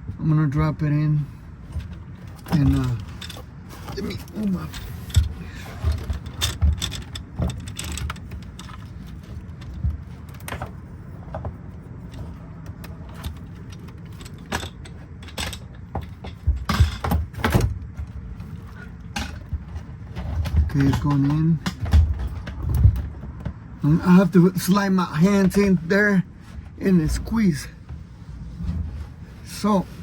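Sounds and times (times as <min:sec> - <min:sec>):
clicks knocks and rattles: 0:01.7 - 0:23.7.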